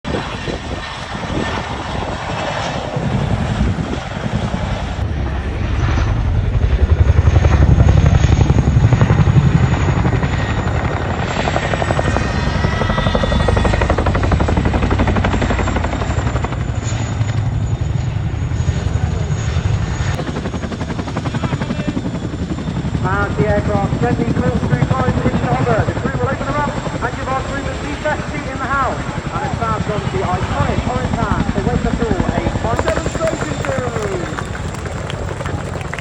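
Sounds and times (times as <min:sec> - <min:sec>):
helicopter rotor chop: 0:00.1 - 0:26.7, 0:32.8 - 0:36.0
helicopter turbine whine: 0:00.1 - 0:36.0.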